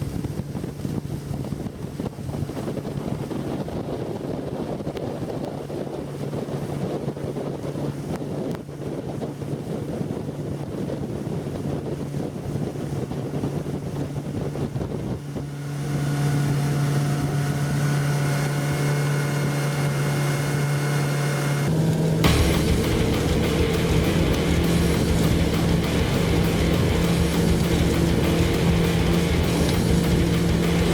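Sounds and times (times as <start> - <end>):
outboard motor running: 0.0 - 30.9
water rushing past hull: 0.0 - 30.9
wind buffeting microphone: 0.0 - 30.9
held tone with overtones: 22.2 - 30.9.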